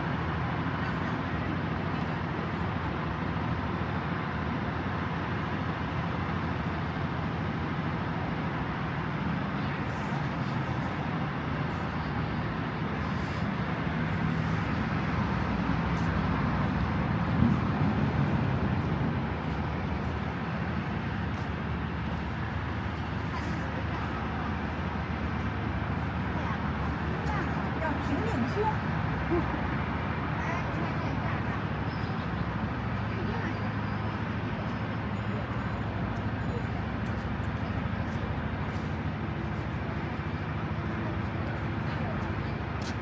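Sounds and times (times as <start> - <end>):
cars passing: 12.6 - 42.9.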